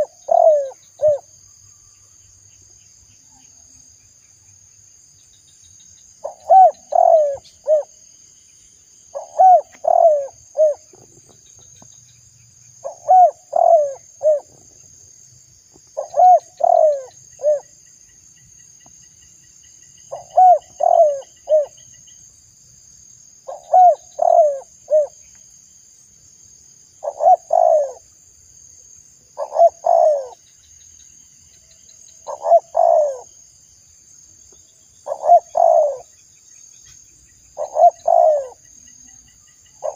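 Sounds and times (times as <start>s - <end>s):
dove cooing: 0.0s - 1.3s, 6.2s - 7.9s, 9.1s - 11.2s, 12.8s - 14.8s, 16.0s - 17.7s, 20.1s - 21.8s, 23.5s - 25.2s, 27.0s - 28.1s, 29.4s - 30.4s, 32.2s - 33.3s, 35.0s - 36.1s, 37.6s - 38.6s
faint high insect drone: 0.0s - 39.9s.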